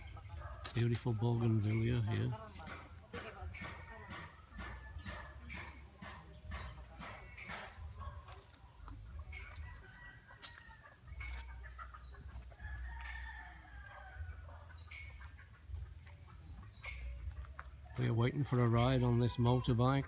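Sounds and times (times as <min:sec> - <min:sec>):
chickens clucking: 0:00.0 - 0:20.0
roosters crowing: 0:09.1 - 0:15.4.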